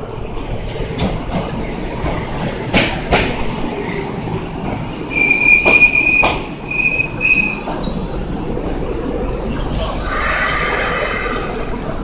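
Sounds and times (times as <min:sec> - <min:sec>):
train running rumble: 0:00.0 - 0:12.0
train wheels squealing: 0:05.1 - 0:08.1
hiss with high tones: 0:09.7 - 0:11.8.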